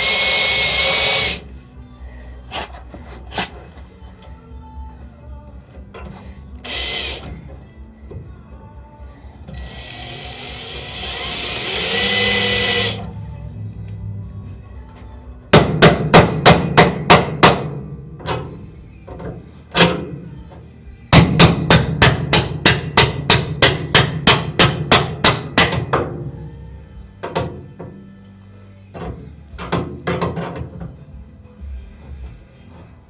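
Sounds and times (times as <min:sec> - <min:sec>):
power drill cutting steel: 0:00.0 - 0:01.4, 0:06.6 - 0:07.2, 0:09.6 - 0:13.1
hammer striking metal: 0:15.5 - 0:17.8, 0:21.1 - 0:26.1.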